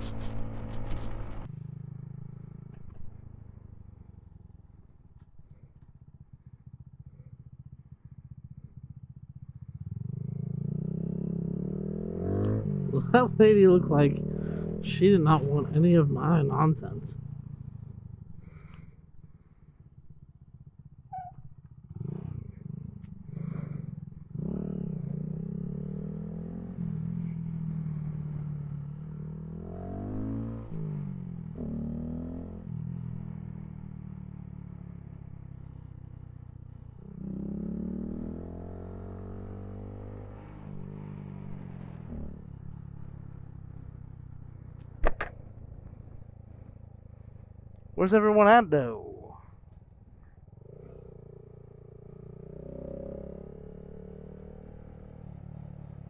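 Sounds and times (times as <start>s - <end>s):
motorcycle engine revving: 0.0s - 56.0s
sharp knock: 45.0s - 45.3s.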